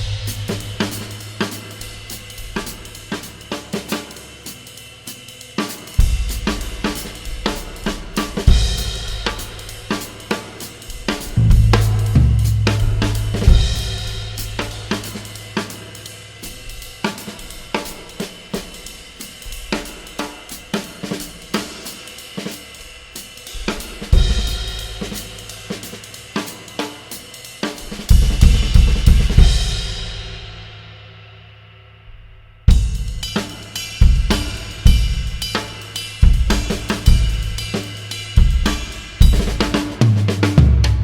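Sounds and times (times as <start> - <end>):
crash cymbal accents: 0.0 - 3.1
heavy drum hits: 0.0 - 3.2, 10.9 - 15.6, 27.8 - 30.6, 32.1 - 41.0
kick and snare drums: 0.0 - 4.0, 5.9 - 15.8, 23.5 - 26.6, 27.7 - 30.7, 32.1 - 41.0
cymbal pattern: 0.0 - 31.2, 32.7 - 41.0.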